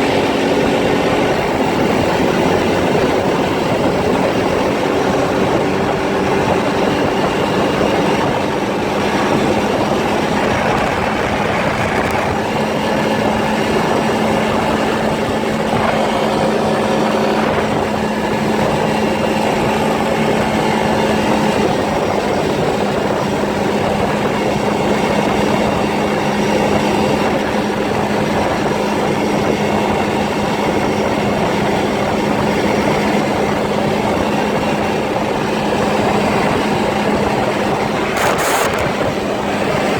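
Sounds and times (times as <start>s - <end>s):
riding noise: 0.0s - 24.9s, 34.0s - 39.9s
atv engine running: 0.0s - 39.9s.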